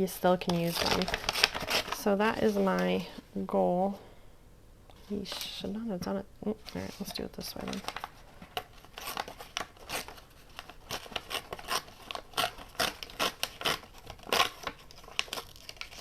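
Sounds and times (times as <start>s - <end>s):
paper crackling and rustling: 0.2s - 3.1s, 6.5s - 16.0s.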